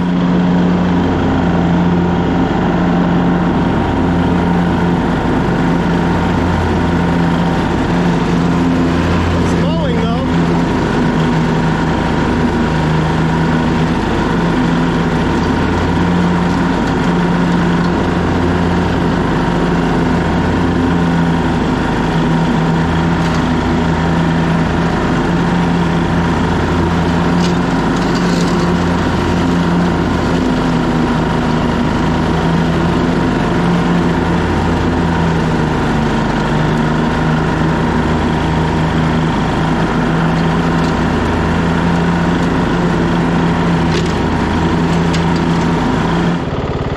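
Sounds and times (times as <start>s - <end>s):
lawn tractor engine running: 0.0s - 46.9s.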